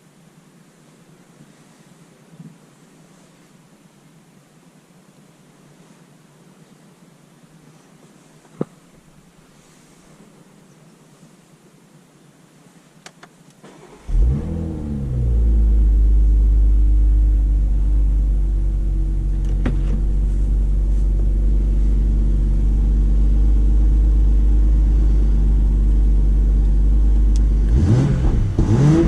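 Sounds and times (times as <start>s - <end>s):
faint clicks: 13.0s - 13.6s
car engine starting and idling: 13.6s - 29.0s.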